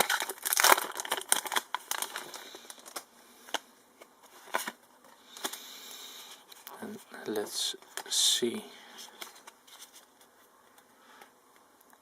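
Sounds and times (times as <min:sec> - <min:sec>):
foil wrapper crinkling: 0:00.0 - 0:03.6.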